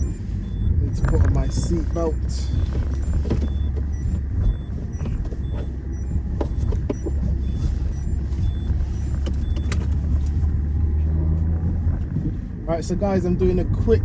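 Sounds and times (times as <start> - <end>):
car engine drone from inside: 0.0 - 14.0.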